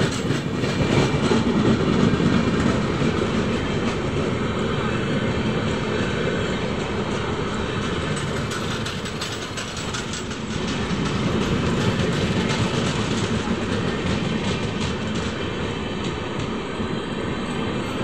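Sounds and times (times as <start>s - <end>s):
steel wheels rumbling on rails: 0.0s - 18.0s
rapid clicks and clatter: 7.8s - 15.4s.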